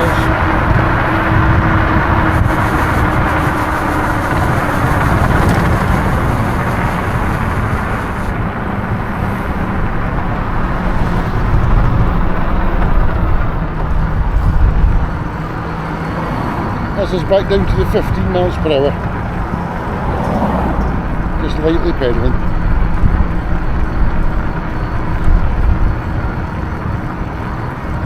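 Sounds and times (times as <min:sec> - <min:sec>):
tyre and road noise: 0:00.0 - 0:28.0
wind buffeting microphone: 0:00.0 - 0:28.0.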